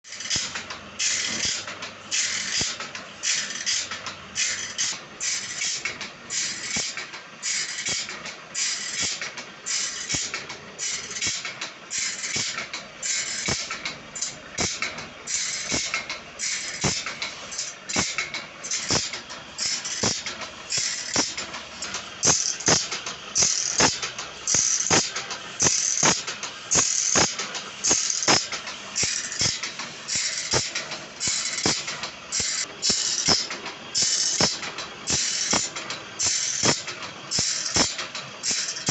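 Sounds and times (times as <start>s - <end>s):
hand saw rasping strokes: 0.0s - 13.6s, 36.2s - 38.9s
sharp metallic click: 0.1s - 38.9s.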